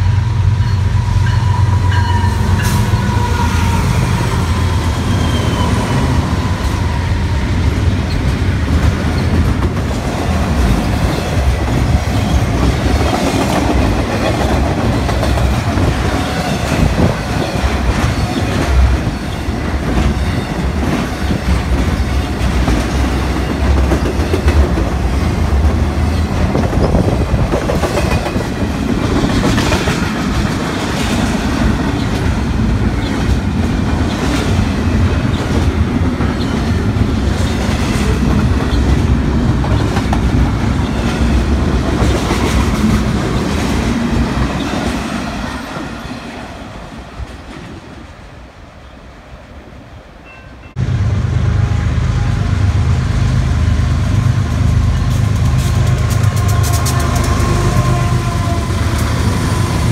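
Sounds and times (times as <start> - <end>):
train rolling past: 0.0 - 59.9.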